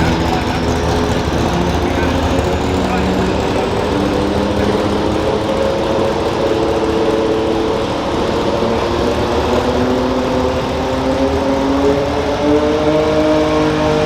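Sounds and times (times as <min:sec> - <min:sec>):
garden tractor engine running: 0:00.0 - 0:11.1.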